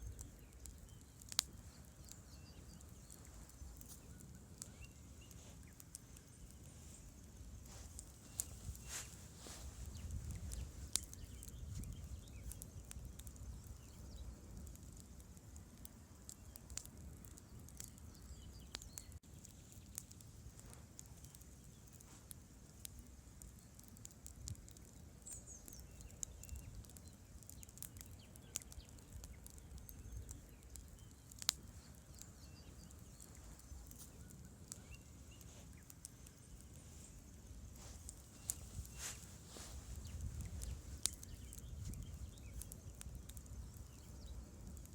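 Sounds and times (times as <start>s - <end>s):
campfire crackling and popping: 0.0s - 44.9s.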